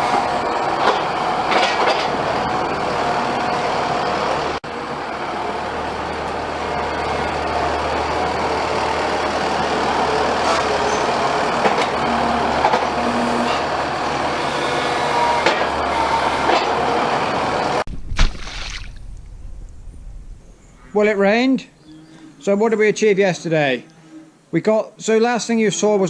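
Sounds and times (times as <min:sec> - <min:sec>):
combine harvester running: 0:00.0 - 0:17.9.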